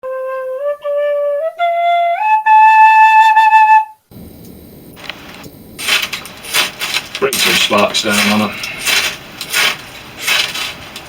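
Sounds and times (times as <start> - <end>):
flute melody: 0.0 - 4.1
faint rustling: 4.1 - 11.0.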